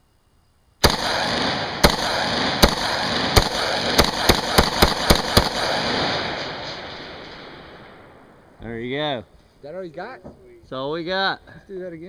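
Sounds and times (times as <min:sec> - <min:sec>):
rifle shots: 0:00.8 - 0:08.6.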